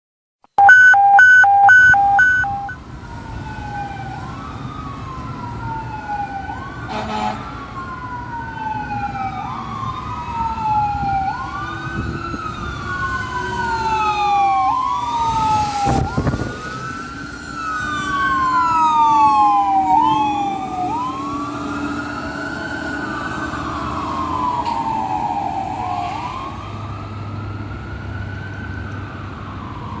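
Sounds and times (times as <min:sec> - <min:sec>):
second siren wailing: 0:00.6 - 0:30.0
siren wailing: 0:00.6 - 0:30.0
short horn blasts: 0:06.9 - 0:07.4.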